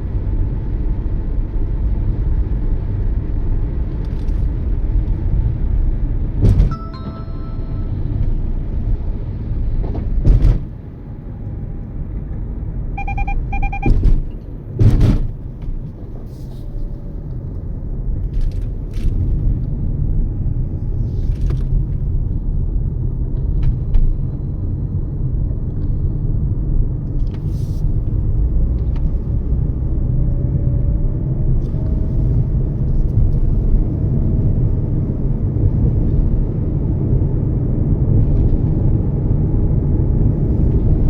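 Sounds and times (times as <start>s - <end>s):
road and engine rumble: 0.0s - 41.0s
short electronic beeps: 6.7s - 8.2s, 13.0s - 14.1s.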